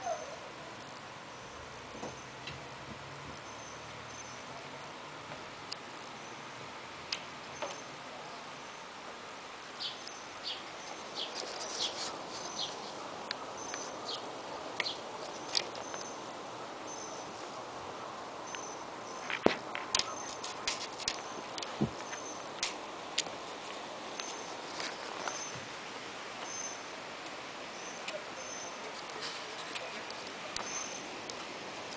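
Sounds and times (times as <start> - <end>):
small birds chirping: 0.0 - 5.0, 5.6 - 9.0, 9.6 - 31.9.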